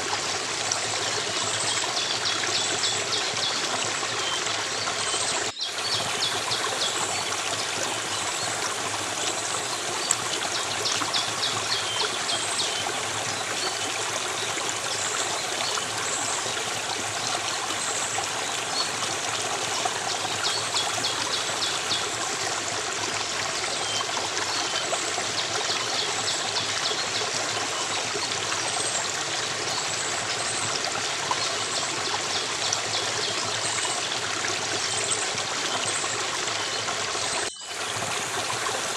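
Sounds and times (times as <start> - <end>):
stream water running and splashing: 0.0 - 38.9.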